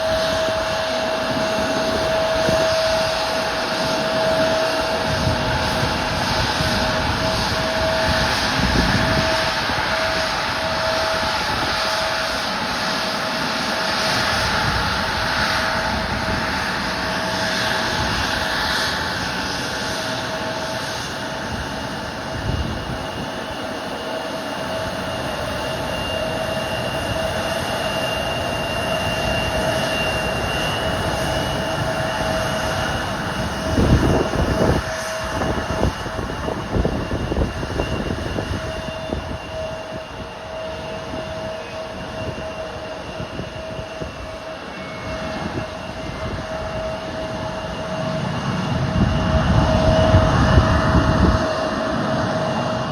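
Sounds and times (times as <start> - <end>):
jet engines whining: 0.0 - 52.9.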